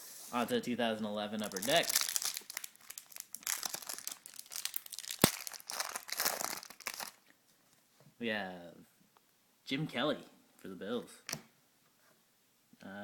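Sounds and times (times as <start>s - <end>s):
wrapper tearing and crinkling: 1.4s - 7.2s.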